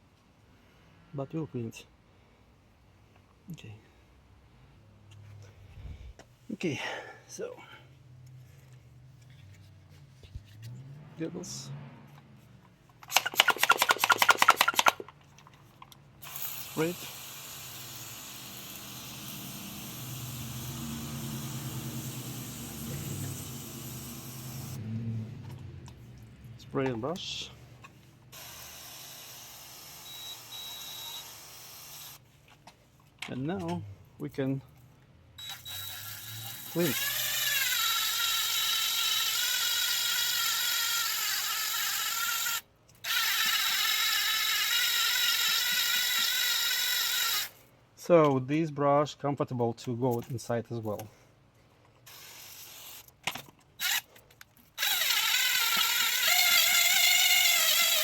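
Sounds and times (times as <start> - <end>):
power drill motor whine: 16.2 - 24.8, 28.4 - 32.2, 35.4 - 47.5, 53.8 - 54.1, 54.8 - 58.0.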